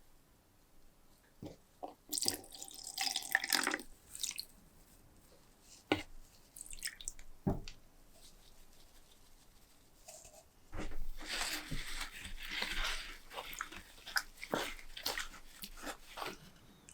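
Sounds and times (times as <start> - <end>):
liquid pouring and dripping: 2.1 - 4.5, 6.6 - 7.3.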